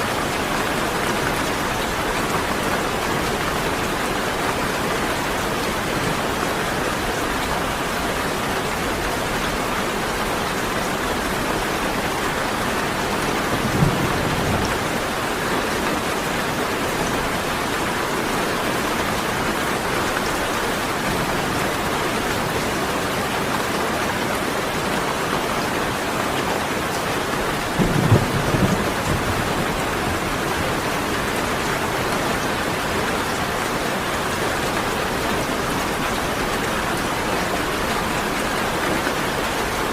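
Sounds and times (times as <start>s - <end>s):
heavy rain falling: 0.0s - 39.9s
low rumbles of thunder: 13.5s - 15.0s, 27.8s - 30.5s.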